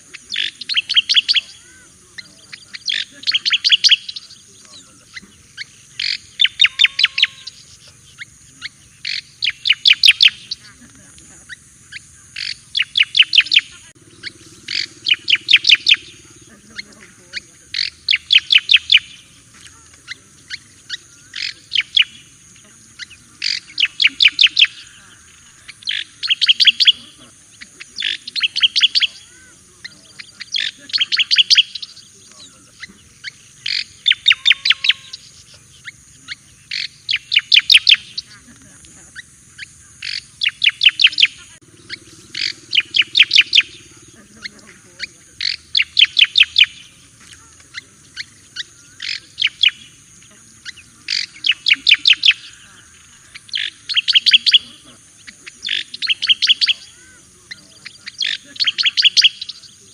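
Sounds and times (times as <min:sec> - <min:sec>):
bird singing clipped notes: 0:00.0 - 0:59.9.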